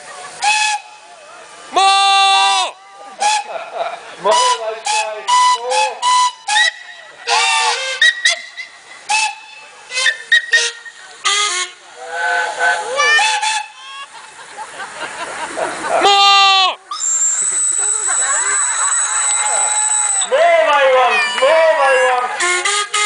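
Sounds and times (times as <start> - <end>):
steam hiss: 0.0 - 2.5, 3.1 - 16.2
steam whistle toots: 0.3 - 1.1, 1.8 - 13.8, 16.1 - 20.4
long chime-like whistle: 17.0 - 20.3.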